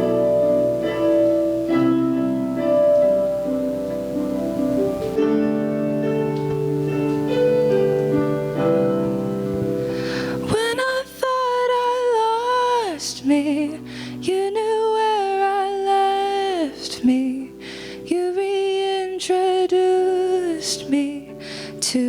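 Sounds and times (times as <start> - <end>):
soft keyboard accompaniment: 0.0 - 22.0
woman singing slow worship song: 9.9 - 22.0.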